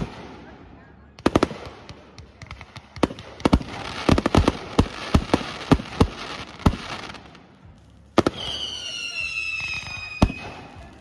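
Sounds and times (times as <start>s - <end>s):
fireworks bangs: 0.0s - 0.5s, 1.2s - 11.0s.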